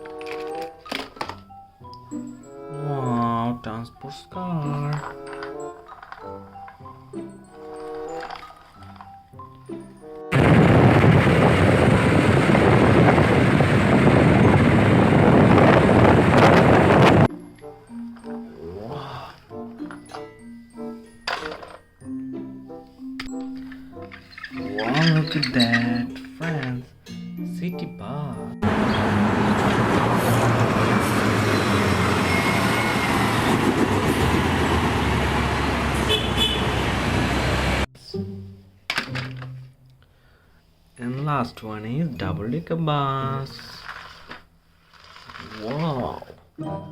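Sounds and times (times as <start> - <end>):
light background music: 0.0 - 10.4, 17.3 - 28.9, 38.0 - 43.9, 45.7 - 46.9
vehicle engine rumble: 10.3 - 17.3, 28.6 - 37.9.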